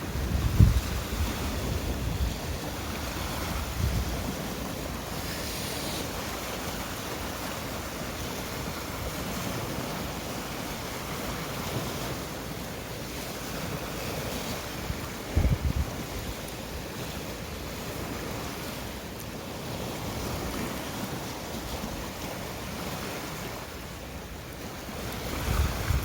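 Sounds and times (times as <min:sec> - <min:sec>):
wind buffeting microphone: 0:00.0 - 0:10.0, 0:13.5 - 0:17.1, 0:24.9 - 0:26.0
sea waves washing on shore: 0:00.0 - 0:26.0.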